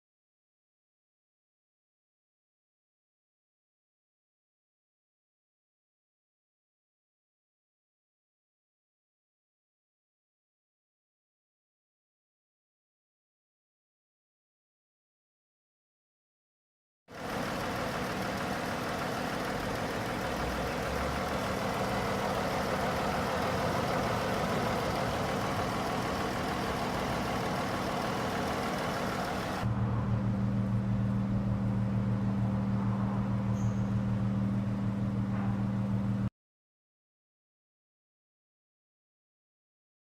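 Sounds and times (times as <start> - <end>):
car engine idling: 17.1 - 32.7.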